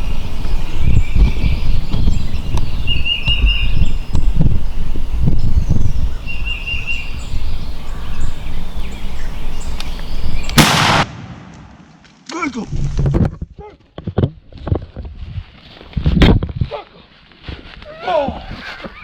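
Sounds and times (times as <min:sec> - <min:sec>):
birds chirping: 0:00.0 - 0:12.6
shotgun blast: 0:10.6 - 0:12.1.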